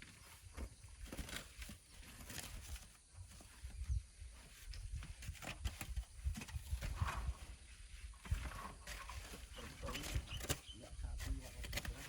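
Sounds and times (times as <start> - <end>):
wind rumble on microphone: 3.4 - 12.0.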